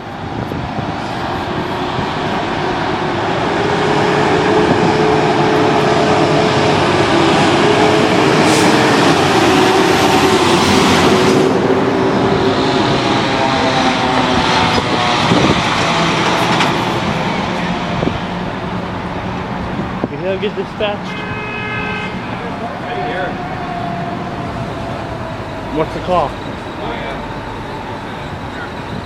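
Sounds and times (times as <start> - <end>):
fire truck engines droning: 0.0 - 29.0.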